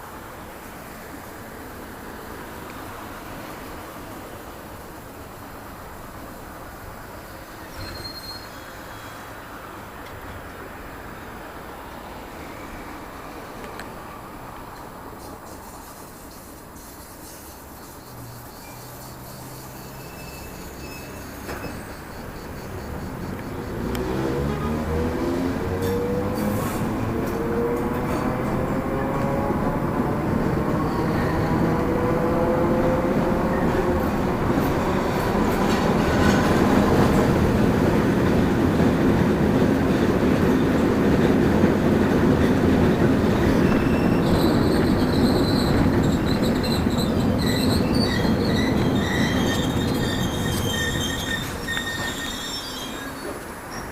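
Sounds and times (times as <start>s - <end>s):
train rumbling past on rails: 0.0s - 53.9s
train wheels squealing: 7.0s - 9.5s, 15.2s - 25.0s, 30.7s - 37.4s, 43.4s - 53.9s.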